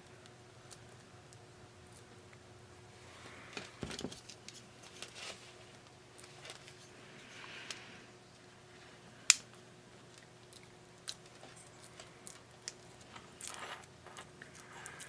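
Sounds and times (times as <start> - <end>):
rustling scrape: 4.6 - 7.6, 13.0 - 15.0.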